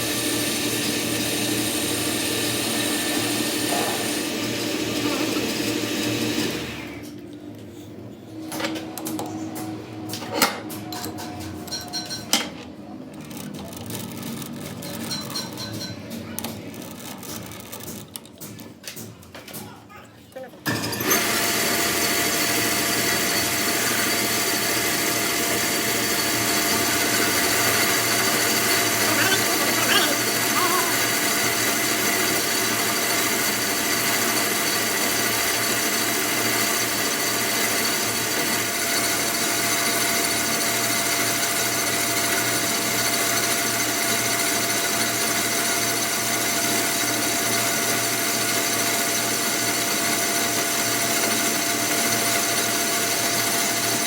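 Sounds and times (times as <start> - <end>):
power tool running with whine: 0.0 - 7.1, 20.7 - 54.0.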